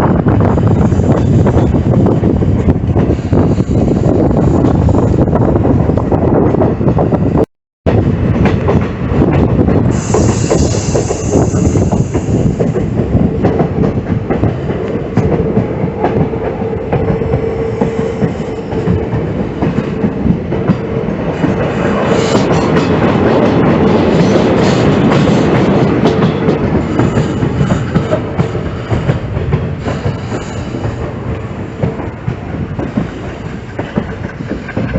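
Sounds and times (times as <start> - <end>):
train rumble: 0.0 - 34.9
train wheels clattering on track: 7.9 - 34.9.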